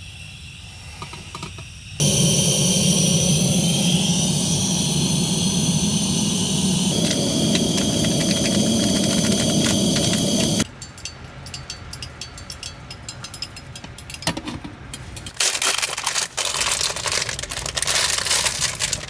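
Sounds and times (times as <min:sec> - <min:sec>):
plastic packaging crinkling: 0:15.4 - 0:19.0.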